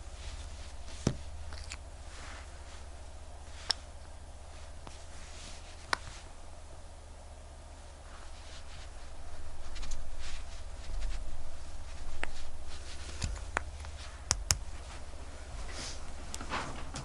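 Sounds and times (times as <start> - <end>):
low steady hum: 0.0 - 17.0
faint scratching: 8.0 - 17.0.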